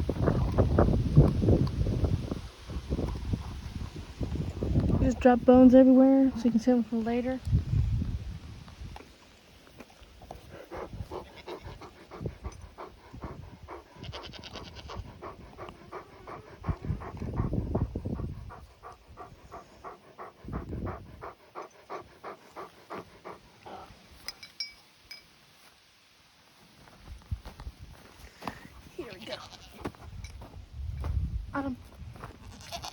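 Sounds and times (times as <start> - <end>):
dog panting: 1.6 - 7.5, 10.2 - 24.0.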